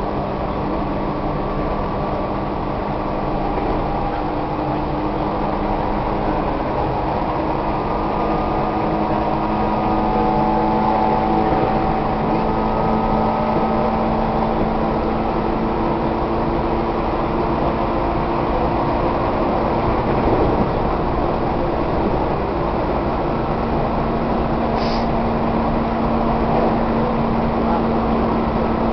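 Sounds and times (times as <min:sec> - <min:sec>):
train wheel and rail rumble: 0:00.0 - 0:28.9.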